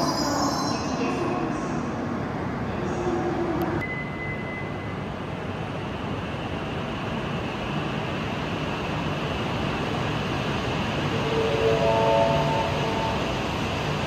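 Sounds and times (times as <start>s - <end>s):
train rumbling: 0.0s - 14.0s
thin high tone: 11.2s - 13.3s.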